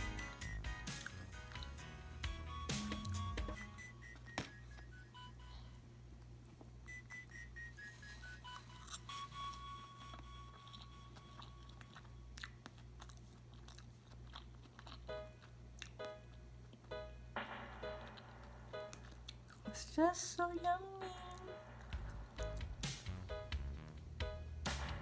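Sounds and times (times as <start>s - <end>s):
quiet background music: 0.0s - 25.0s
chewing and mouth sounds: 0.8s - 1.9s, 7.6s - 16.9s.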